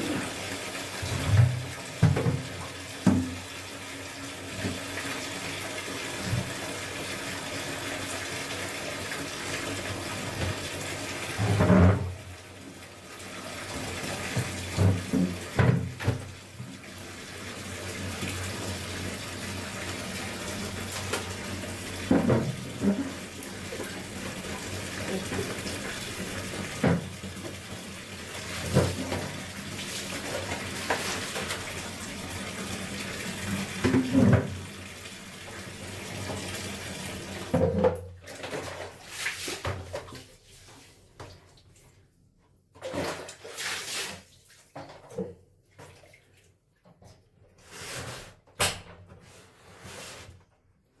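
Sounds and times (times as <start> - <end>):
water running from a tap: 0.0 - 37.7
knocks and splashes: 1.0 - 3.5, 14.3 - 16.7, 22.0 - 23.1, 28.5 - 31.7, 33.8 - 34.6, 37.5 - 40.3.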